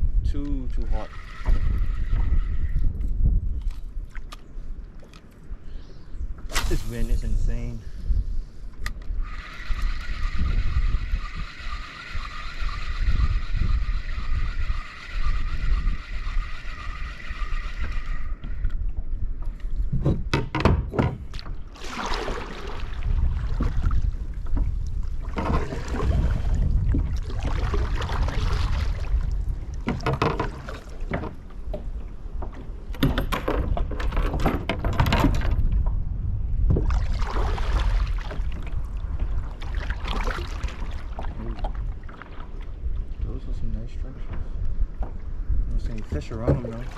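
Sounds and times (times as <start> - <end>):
wind buffeting microphone: 0.0 - 46.9
steady whirring whine: 9.0 - 18.8
water splashing against kayak: 21.2 - 35.8, 36.6 - 43.2, 45.9 - 46.9.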